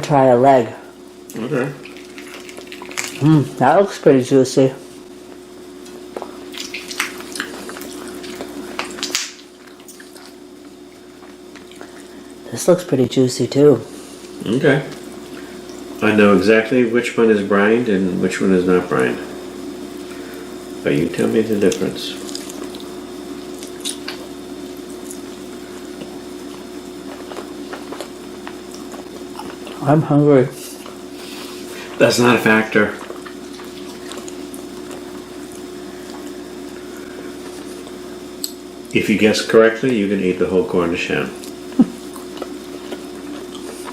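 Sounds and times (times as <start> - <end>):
background hum: 0.0 - 43.9
wet squishing of food: 1.8 - 3.3, 6.1 - 12.2, 21.5 - 29.9, 30.6 - 38.0
wet tearing sounds: 6.5 - 10.4, 21.6 - 22.9.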